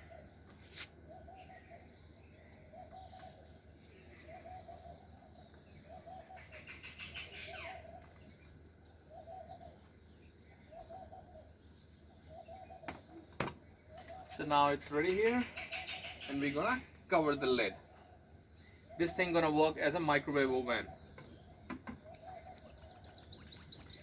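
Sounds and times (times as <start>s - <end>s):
small birds chirping: 0.0s - 24.0s
dove cooing: 2.7s - 8.4s, 9.1s - 9.9s, 10.6s - 14.3s.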